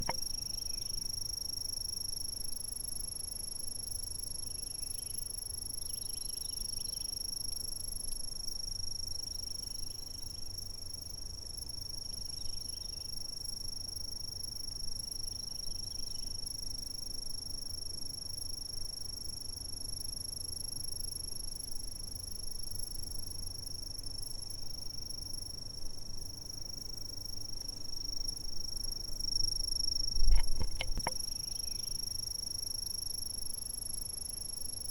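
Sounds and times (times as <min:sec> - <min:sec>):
insects trilling: 0:00.0 - 0:34.9.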